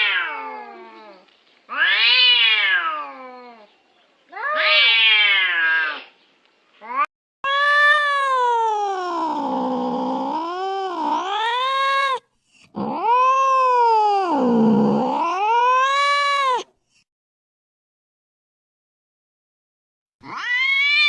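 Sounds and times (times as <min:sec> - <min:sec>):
cat yowling: 0:00.0 - 0:03.7, 0:04.3 - 0:06.1, 0:06.9 - 0:16.7, 0:20.2 - 0:21.0.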